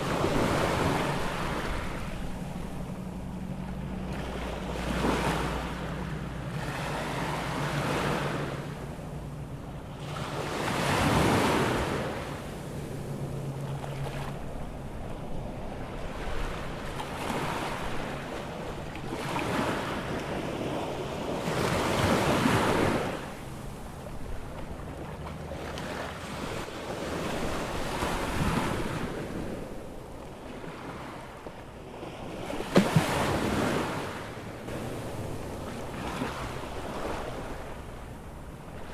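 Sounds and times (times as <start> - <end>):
low steady hum: 0.0 - 11.2
surf waves breaking on beach: 0.0 - 38.9.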